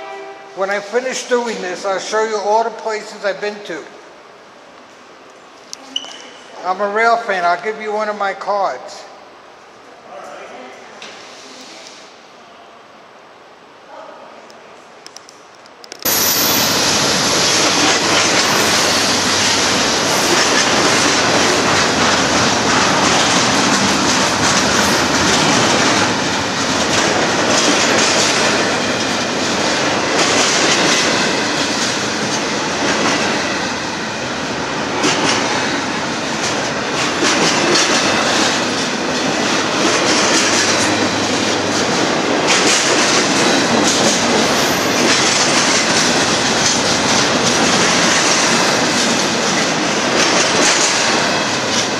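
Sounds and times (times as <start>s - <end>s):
train cars rumbling and rattling: 15.8s - 51.9s
wheels clacking over rail joints: 16.9s - 34.0s, 34.6s - 51.9s.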